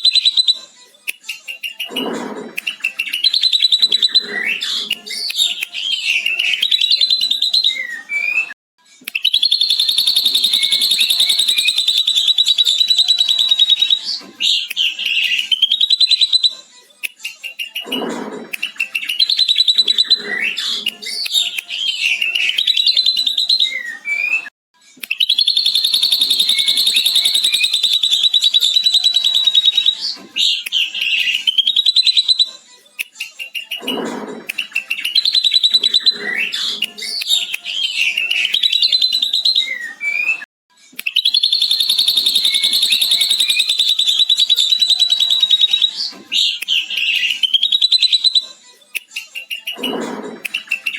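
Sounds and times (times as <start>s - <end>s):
bird mimicry song: 0.0s - 0.6s, 2.7s - 8.5s, 9.2s - 16.6s, 18.7s - 24.4s, 25.2s - 32.5s, 34.7s - 40.4s, 41.1s - 48.5s.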